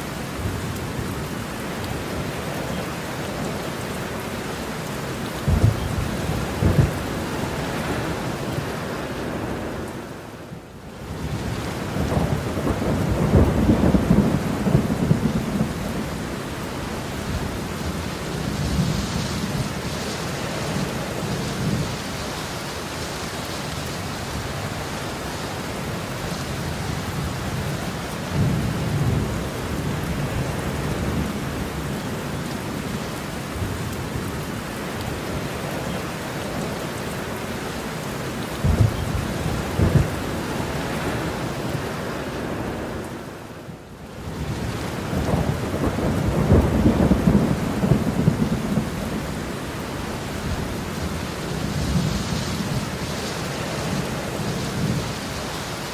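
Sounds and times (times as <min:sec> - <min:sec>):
heavy rain: 0:00.0 - 0:55.9
rolling thunder: 0:05.4 - 0:08.7, 0:11.3 - 0:16.4, 0:38.6 - 0:41.4, 0:44.3 - 0:49.6.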